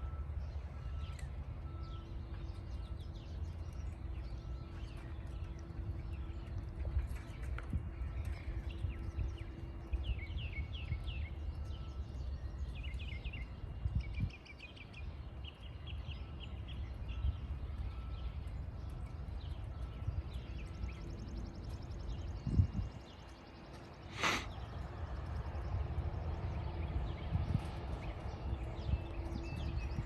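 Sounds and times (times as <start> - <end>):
low wind rumble: 0.0 - 30.0
songbird chirping: 0.0 - 30.0.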